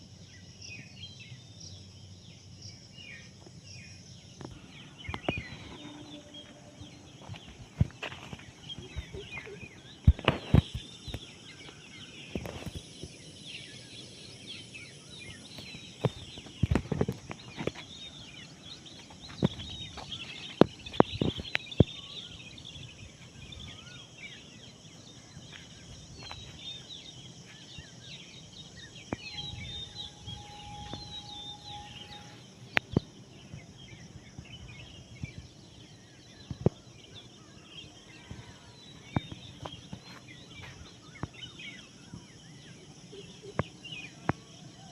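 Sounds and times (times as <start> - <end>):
small birds chirping: 0.0 - 44.9
steady whistle-like tone: 4.6 - 7.6, 28.8 - 33.0.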